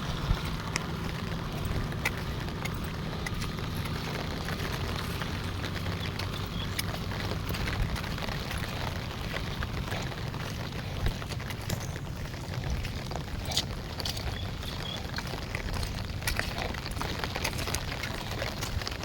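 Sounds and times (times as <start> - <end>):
heavy rain pouring: 0.0 - 19.0
low rain rumble: 0.0 - 19.0.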